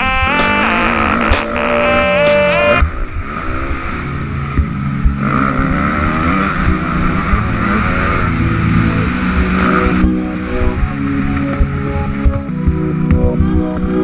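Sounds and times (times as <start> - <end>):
motocross bike engine revving: 0.0 - 11.2.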